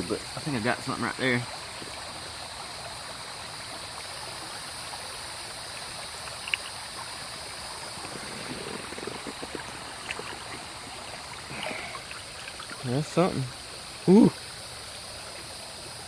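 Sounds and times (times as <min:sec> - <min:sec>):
creek water running over rocks: 0:00.0 - 0:16.0.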